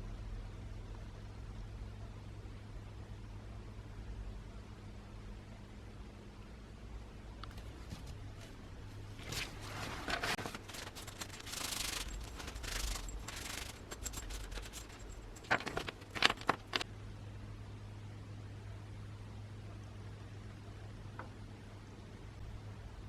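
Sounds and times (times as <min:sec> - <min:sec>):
hand scraping and rubbing: 0:07.5 - 0:16.8.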